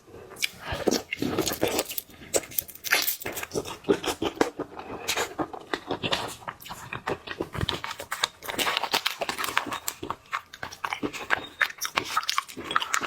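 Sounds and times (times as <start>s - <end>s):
chewing: 0.3s - 13.0s.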